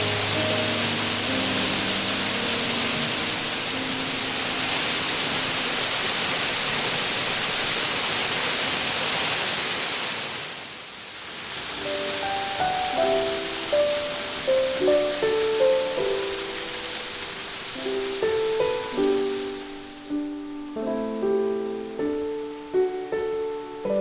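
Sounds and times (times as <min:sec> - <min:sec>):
faint held music notes: 0:00.0 - 0:06.3, 0:11.7 - 0:24.0
waterfall rushing: 0:00.0 - 0:24.0.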